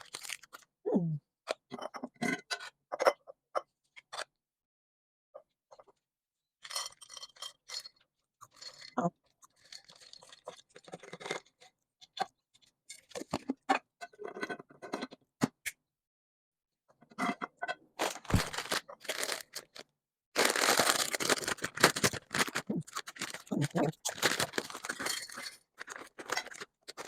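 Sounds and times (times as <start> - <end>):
packaging crinkling and scraping: 0.0 - 0.6, 18.0 - 27.0.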